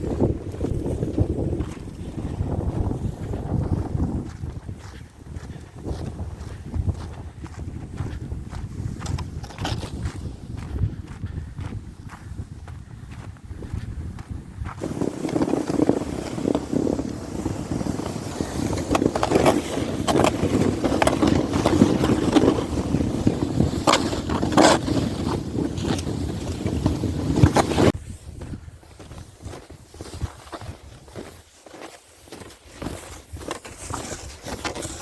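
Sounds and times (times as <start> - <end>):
sled scraping over snow: 0.0 - 10.9, 14.4 - 35.0
wind on microphone: 0.0 - 31.4.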